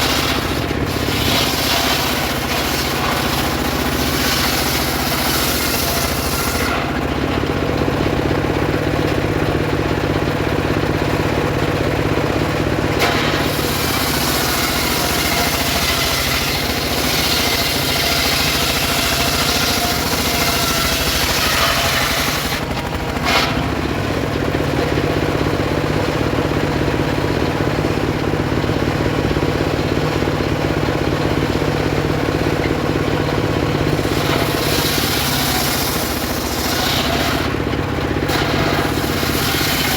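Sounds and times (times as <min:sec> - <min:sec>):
saw blade cutting wood: 0:00.0 - 0:07.5, 0:12.9 - 0:24.4, 0:32.6 - 0:39.9
circular saw motor humming: 0:12.8 - 0:24.4, 0:32.0 - 0:39.9.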